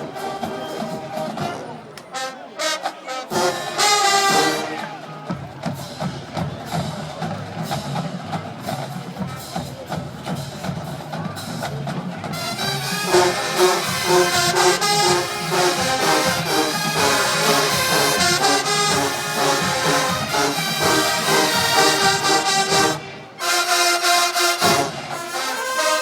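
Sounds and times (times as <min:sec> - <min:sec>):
loud brass section: 0:00.0 - 0:05.3, 0:12.3 - 0:26.0
marching band percussion: 0:00.0 - 0:26.0.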